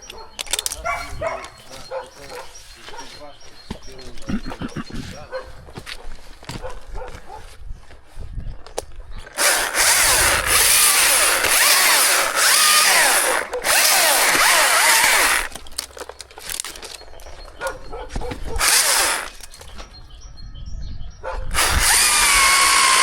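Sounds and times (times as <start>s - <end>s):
knocks and handling sounds: 0.0s - 8.0s, 15.2s - 20.0s
chainsaw cutting wood: 9.3s - 16.8s, 18.4s - 19.7s, 21.5s - 23.0s.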